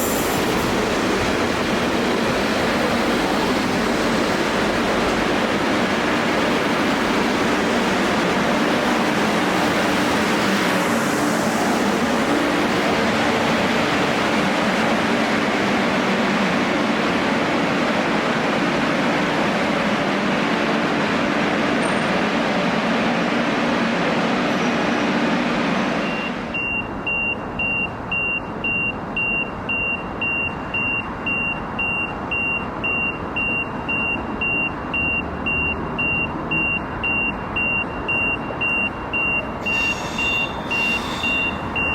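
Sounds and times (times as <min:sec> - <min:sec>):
train rolling past: 0:00.0 - 0:26.5, 0:35.4 - 0:41.9
high electronic beep: 0:26.0 - 0:41.9.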